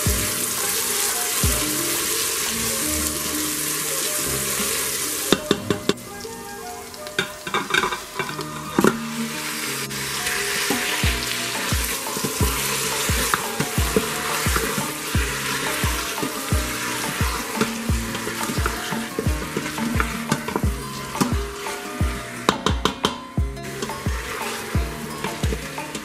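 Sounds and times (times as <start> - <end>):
onions sizzling in hot oil: 0.0 - 6.2, 6.8 - 22.9, 23.5 - 26.0
spatula stirring in pot: 7.2 - 26.0.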